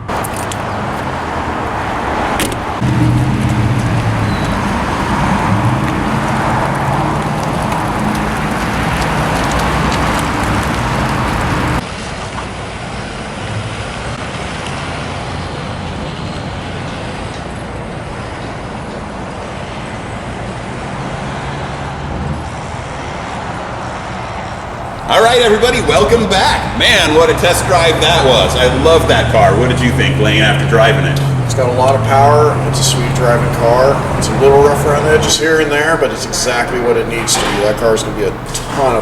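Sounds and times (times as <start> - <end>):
vehicle engine running: 0.0 - 11.8, 24.4 - 39.0
road noise: 0.0 - 39.0
traffic: 0.0 - 39.0.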